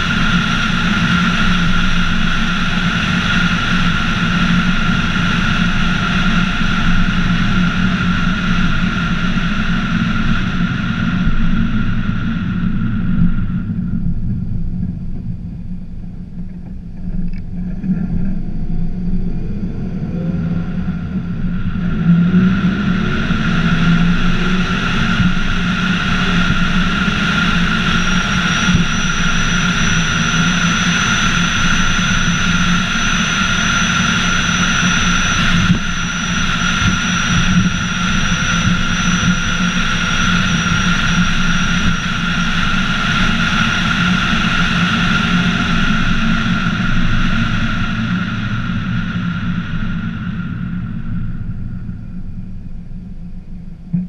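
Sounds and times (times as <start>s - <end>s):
car engine accelerating: 17.1s - 42.0s.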